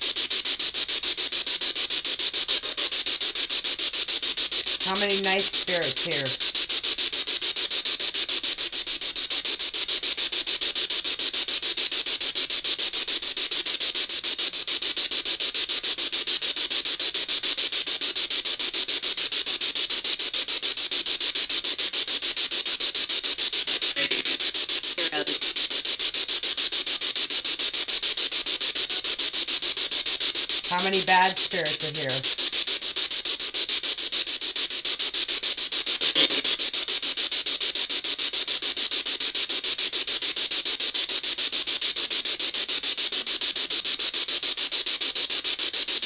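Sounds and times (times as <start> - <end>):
chopped radio static hiss: 0.0 - 46.0
snatches of broadcast voice: 4.6 - 6.4, 23.8 - 25.5, 30.2 - 32.2, 36.0 - 36.6.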